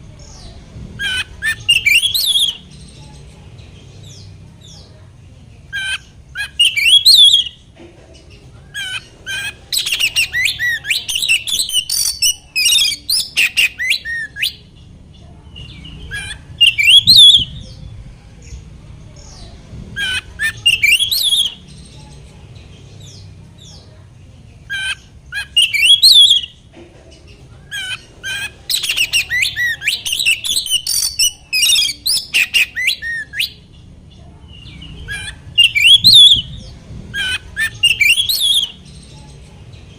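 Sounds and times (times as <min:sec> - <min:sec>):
songbird whistles and trills: 0:01.0 - 0:03.0, 0:05.8 - 0:07.6, 0:08.8 - 0:14.7, 0:15.6 - 0:17.8, 0:20.0 - 0:22.1, 0:24.7 - 0:26.6, 0:27.7 - 0:33.7, 0:34.5 - 0:39.4.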